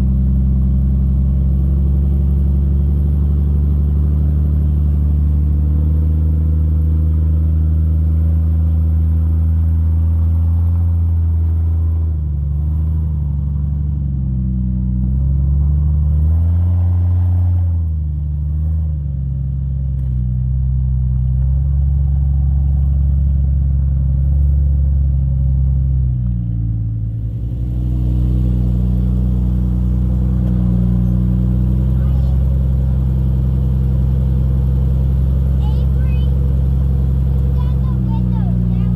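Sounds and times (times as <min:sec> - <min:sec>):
car engine at crawling speed: 0:00.0 - 0:38.9.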